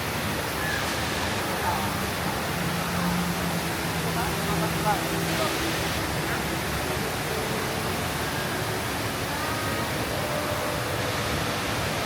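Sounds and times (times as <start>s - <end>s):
indoor waterfall rushing: 0.0s - 12.0s.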